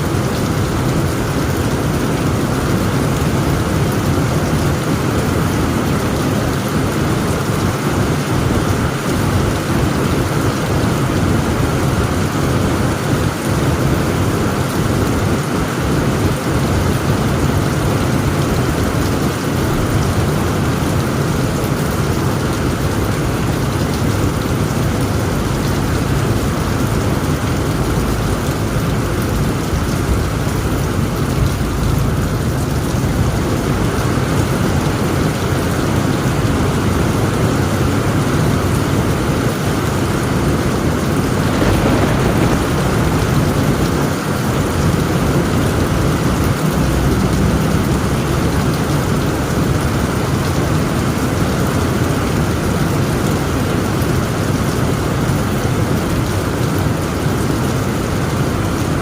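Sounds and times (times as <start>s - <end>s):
heavy rain on a tent roof: 0.0s - 59.0s
low rumble of thunder: 13.4s - 37.2s, 40.2s - 51.2s.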